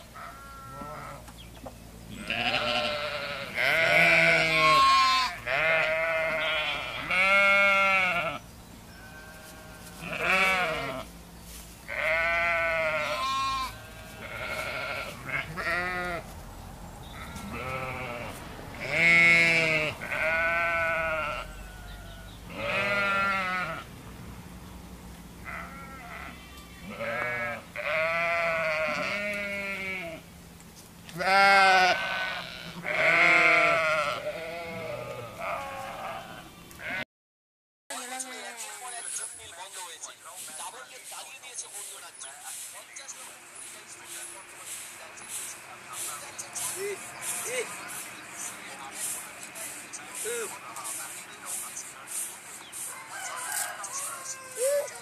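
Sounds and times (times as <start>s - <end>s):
sheep bleating: 0.0s - 1.2s, 2.1s - 11.1s, 11.8s - 16.3s, 17.1s - 23.9s, 25.4s - 30.2s, 31.1s - 37.0s.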